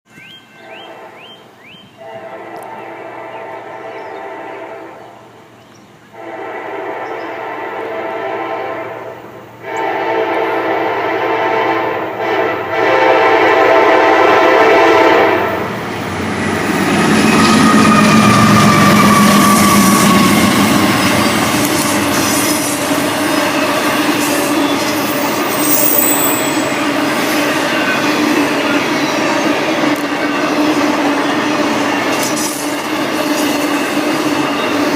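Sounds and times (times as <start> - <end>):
freight train wheels rumbling: 0.2 - 34.9
locomotive horn blasts: 0.5 - 5.3, 6.1 - 15.7, 16.9 - 27.0
high wheel squeals: 16.5 - 32.6, 33.2 - 34.9.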